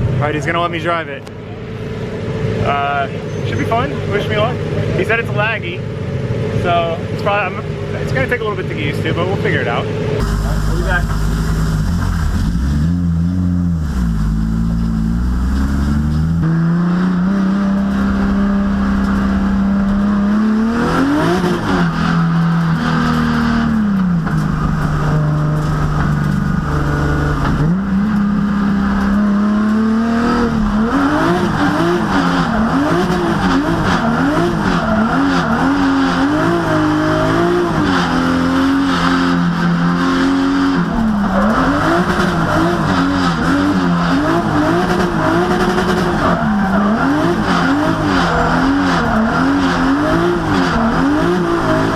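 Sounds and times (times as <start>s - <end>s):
car engine revving high: 6.2s - 51.9s
tyres squealing: 40.8s - 51.9s.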